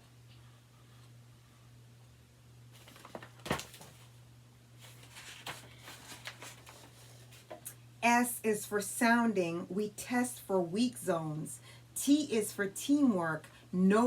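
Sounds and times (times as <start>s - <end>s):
low electrical hum: 0.0s - 14.0s
book page rustling: 2.7s - 4.2s, 4.8s - 7.6s.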